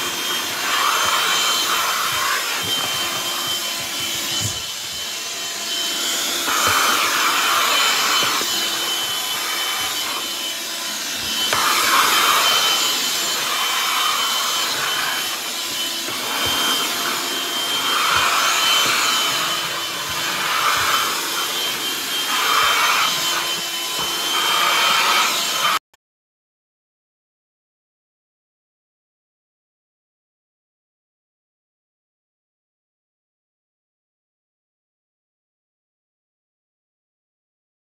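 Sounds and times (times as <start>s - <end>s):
handheld vacuum whining: 0.0s - 25.8s.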